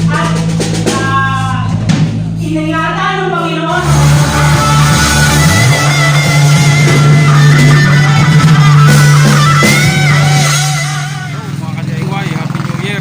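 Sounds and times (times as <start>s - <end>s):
guitar melody over low drone: 3.8s - 12.8s.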